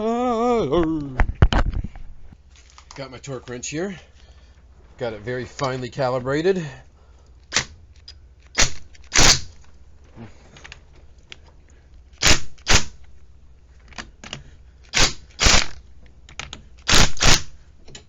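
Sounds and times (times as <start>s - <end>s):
impact wrench bursts: 8.5s - 9.6s, 12.2s - 13.0s, 14.9s - 15.8s, 16.8s - 17.6s.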